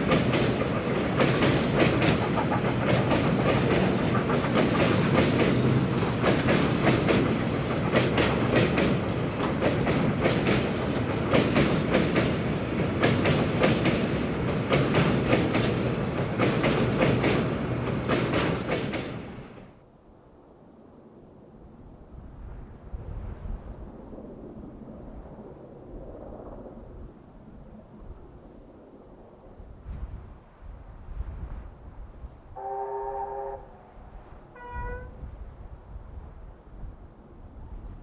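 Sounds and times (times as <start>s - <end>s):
train wheels clicking over rail joints: 0.0s - 19.6s
train rumble: 0.0s - 19.8s, 27.8s - 38.0s.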